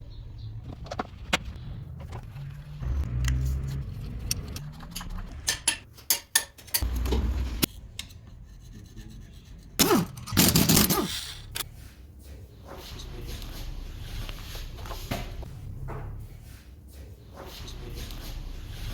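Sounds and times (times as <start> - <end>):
hand tools scraping and clicking: 3.3 - 11.7.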